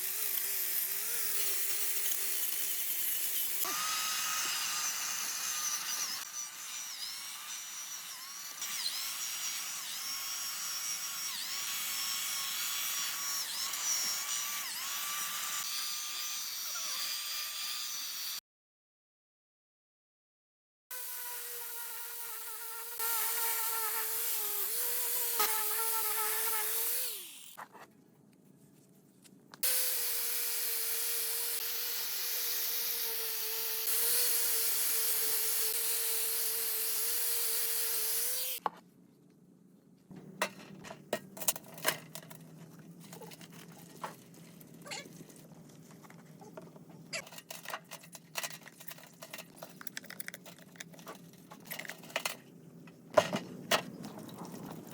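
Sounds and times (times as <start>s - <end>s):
power tool motor whine: 3.6s - 6.3s.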